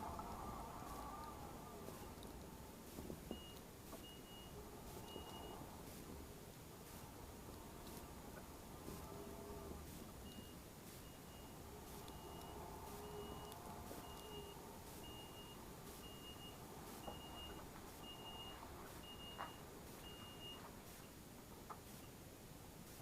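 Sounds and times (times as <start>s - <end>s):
high electronic reversing beeps: 10.2s - 19.4s.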